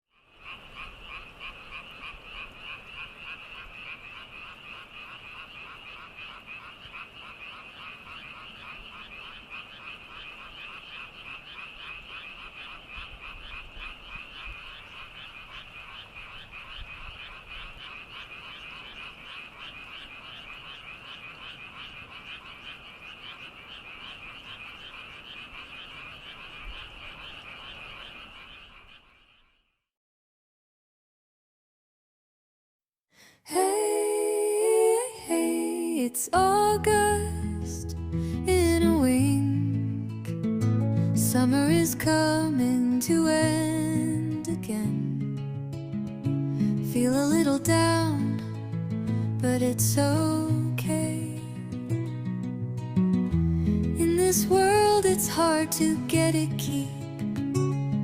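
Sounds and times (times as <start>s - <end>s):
chorus of frogs calling: 0.1s - 29.7s, 53.5s - 56.8s.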